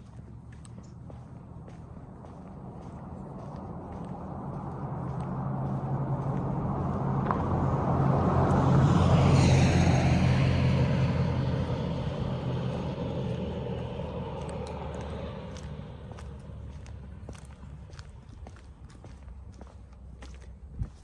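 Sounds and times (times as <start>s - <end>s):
car driving past: 0.0s - 18.6s.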